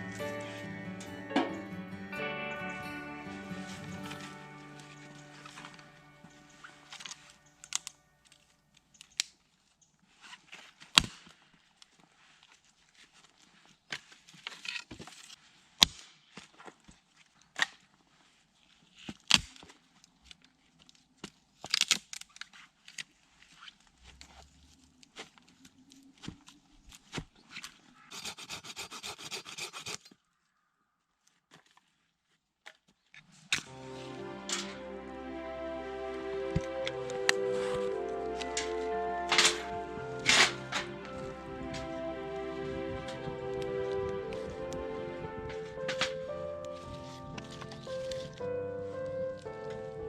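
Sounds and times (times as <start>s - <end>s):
dense crinkling: 41.7s - 50.0s.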